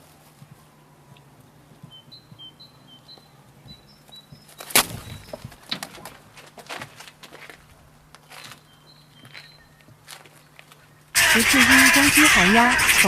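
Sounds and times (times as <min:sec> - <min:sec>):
small bird chirping: 0:01.8 - 0:05.6, 0:08.5 - 0:11.1
rustling: 0:04.1 - 0:11.1
loud sharp crack: 0:04.7 - 0:05.1.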